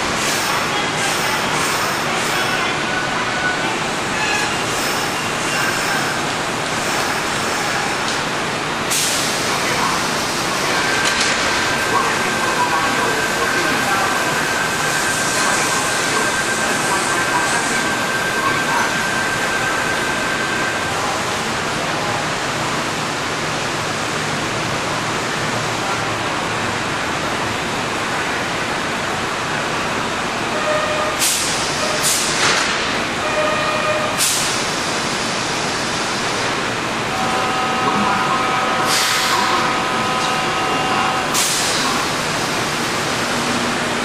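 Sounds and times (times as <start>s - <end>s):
train equipment rushing noise: 0.2s - 2.6s, 4.1s - 8.3s
compressed air hissing: 38.9s - 39.4s.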